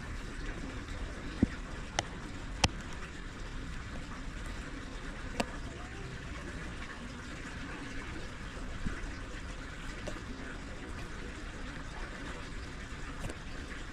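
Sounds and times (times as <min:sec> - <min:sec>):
faint drips: 0:00.0 - 0:13.9
steady rain: 0:00.0 - 0:13.9.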